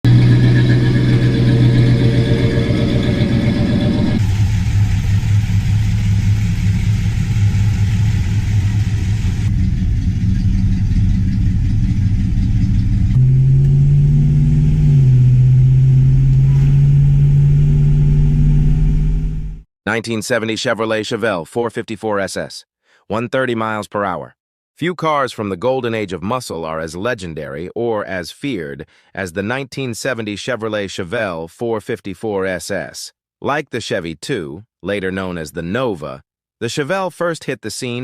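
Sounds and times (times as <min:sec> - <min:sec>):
muscle car engines running: 0:00.0 - 0:19.6.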